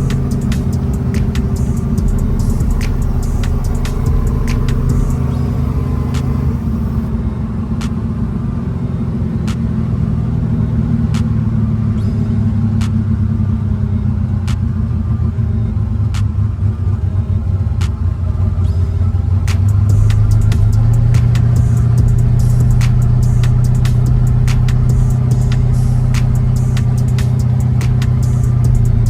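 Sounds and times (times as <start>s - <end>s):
car engine deep rumble: 0.0s - 29.0s
sharp clicks: 19.4s - 29.0s.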